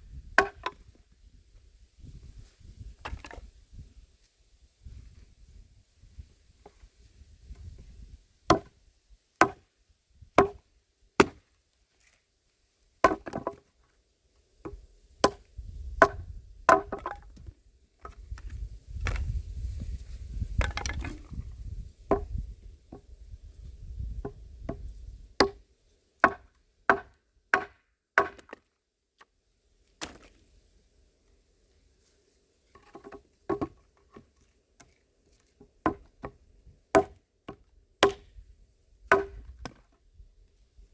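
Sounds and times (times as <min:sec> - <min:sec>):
axe chopping wood: 0:00.3 - 0:00.8, 0:08.5 - 0:08.8, 0:09.4 - 0:09.6, 0:10.3 - 0:10.6, 0:11.2 - 0:11.5, 0:13.0 - 0:13.6, 0:14.7 - 0:18.4, 0:20.6 - 0:21.4, 0:22.1 - 0:23.1, 0:24.2 - 0:25.6, 0:26.2 - 0:28.6, 0:30.0 - 0:30.4, 0:32.8 - 0:34.2, 0:35.9 - 0:36.4, 0:37.0 - 0:38.4, 0:39.0 - 0:39.9.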